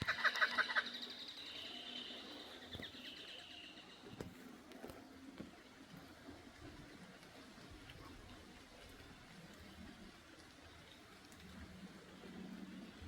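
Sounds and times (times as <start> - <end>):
kookaburras laughing: 0.0 - 1.2.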